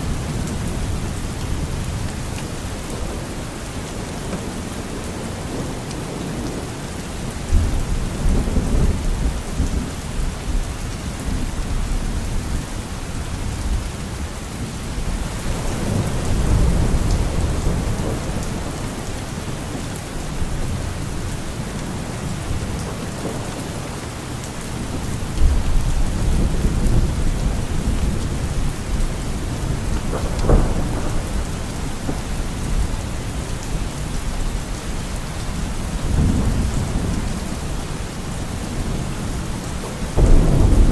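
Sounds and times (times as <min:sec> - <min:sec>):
heavy rain: 0:00.0 - 0:40.9
thunder rolling: 0:25.4 - 0:32.8, 0:40.1 - 0:40.9
sharp crack of thunder: 0:29.4 - 0:33.1, 0:40.2 - 0:40.9.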